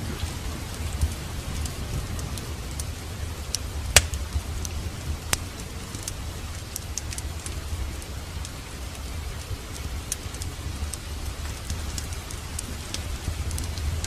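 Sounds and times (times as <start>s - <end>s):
fire pops: 0.0s - 14.0s
fireplace fire crackling: 0.0s - 14.0s
low steady rumble: 0.0s - 14.0s
rain falling: 0.0s - 14.0s.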